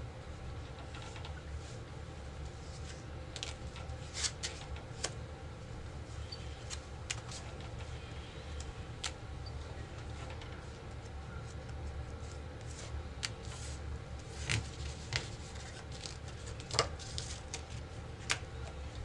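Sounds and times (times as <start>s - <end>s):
low steady hum: 0.0s - 19.0s
cards rustling: 10.9s - 18.4s.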